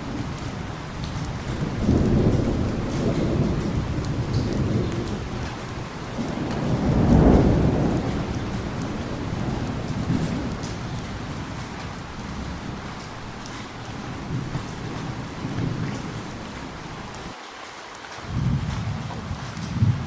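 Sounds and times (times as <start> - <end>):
thunder rumbling: 0.0 - 17.3, 18.3 - 20.0
heavy rain: 0.0 - 20.0.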